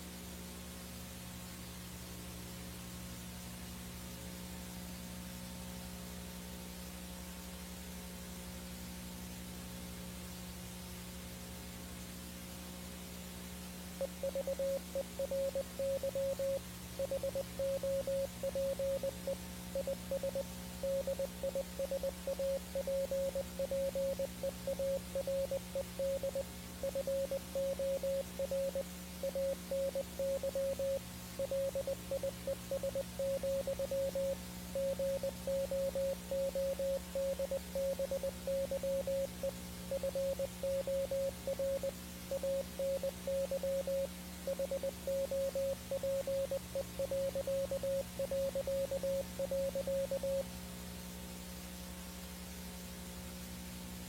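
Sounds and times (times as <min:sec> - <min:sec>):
electrical hum: 0:00.0 - 0:54.0
static hiss: 0:00.0 - 0:54.0
morse code tone: 0:14.0 - 0:50.4.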